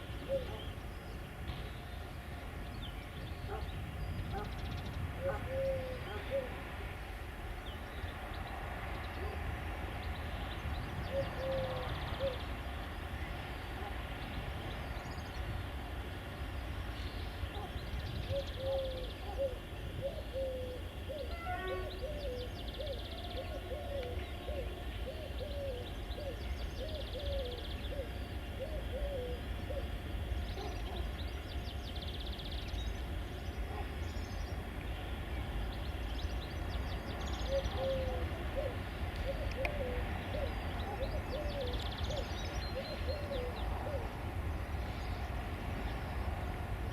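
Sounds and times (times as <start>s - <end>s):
steady low rumble: 0.0s - 21.3s
low repeated bird calls: 0.0s - 46.2s.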